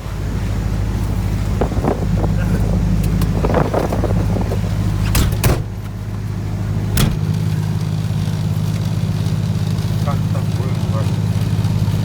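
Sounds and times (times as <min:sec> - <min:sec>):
vehicle engine running: 0:00.0 - 0:12.0
sharp clicks or knocks: 0:07.0 - 0:07.5.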